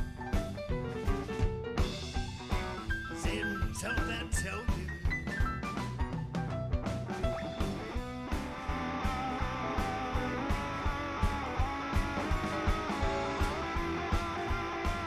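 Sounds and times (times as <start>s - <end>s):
steady drum beat: 0.0s - 15.0s
electric guitar lines: 7.1s - 15.0s.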